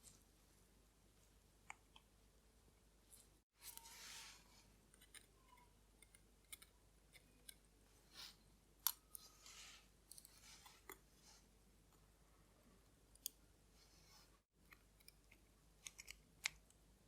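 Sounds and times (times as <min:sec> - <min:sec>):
soft hissing: 0:03.6 - 0:04.8.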